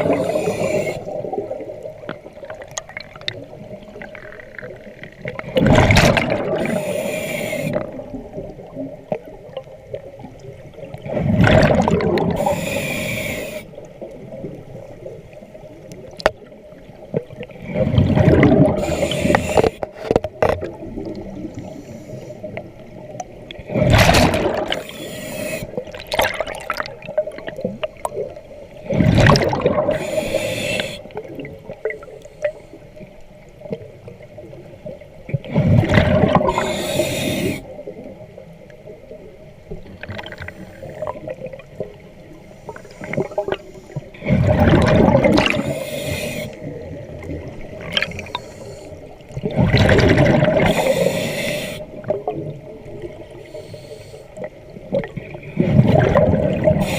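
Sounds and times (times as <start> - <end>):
regulator hissing inhale: 0.0 - 1.3, 6.6 - 8.0, 12.4 - 13.8, 18.8 - 20.0, 21.5 - 22.8, 24.7 - 25.9, 29.9 - 31.2, 32.1 - 33.0, 36.5 - 37.8, 45.5 - 46.8, 48.2 - 49.2, 50.7 - 52.0, 53.3 - 54.5
gurgling rush of exhaled bubbles: 0.0 - 7.0, 7.6 - 12.8, 17.1 - 21.6, 23.6 - 25.0, 25.7 - 30.5, 35.4 - 37.1, 44.2 - 48.4, 49.2 - 53.3, 54.8 - 56.9.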